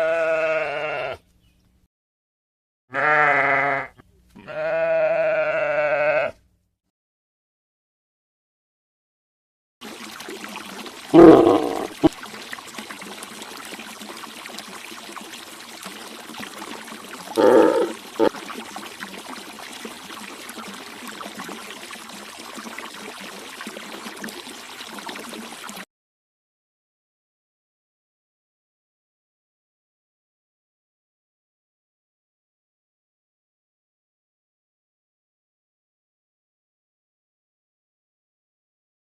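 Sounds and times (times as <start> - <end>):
short animal calls: 11.1 - 12.1, 17.4 - 18.4.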